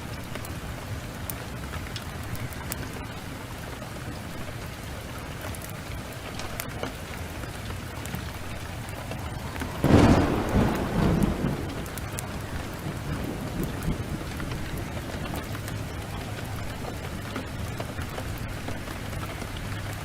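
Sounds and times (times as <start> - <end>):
heavy rain downpour: 0.0 - 20.0
wood fire crackling: 0.0 - 20.0
thunder clap rumbling: 8.1 - 19.1.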